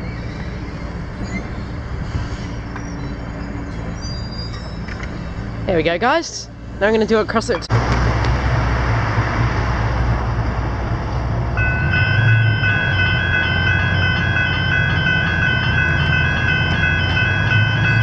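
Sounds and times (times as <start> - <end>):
steady low rumble: 5.1 - 18.0
level crossing bells ringing: 11.6 - 18.0.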